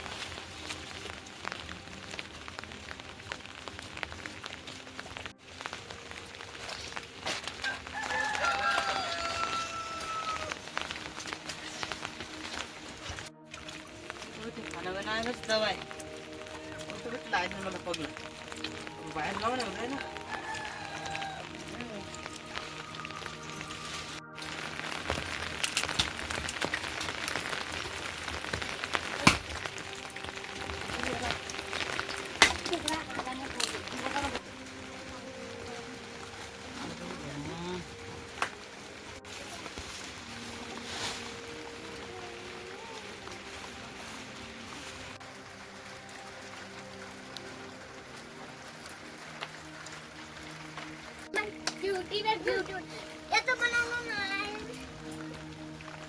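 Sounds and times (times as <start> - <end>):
background music: 0.0 - 56.0
rain drops ticking: 0.0 - 56.0
long falling call: 7.8 - 13.0, 15.8 - 25.6.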